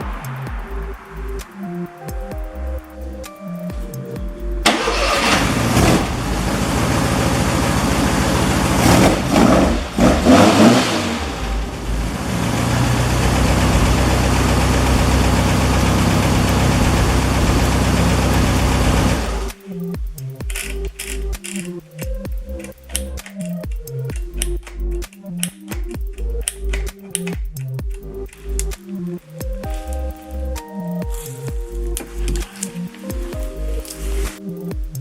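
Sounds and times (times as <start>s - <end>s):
car engine revving: 4.6s - 19.6s.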